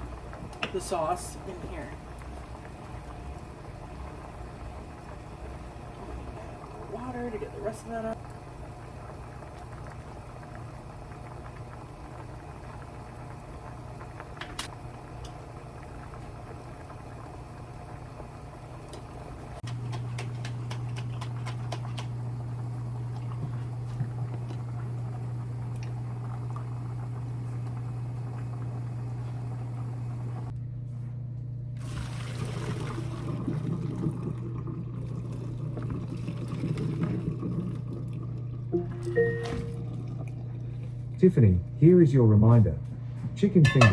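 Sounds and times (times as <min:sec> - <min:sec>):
steady low hum: 0:00.0 - 0:31.8, 0:32.8 - 0:43.9
utensils clattering: 0:43.6 - 0:43.9.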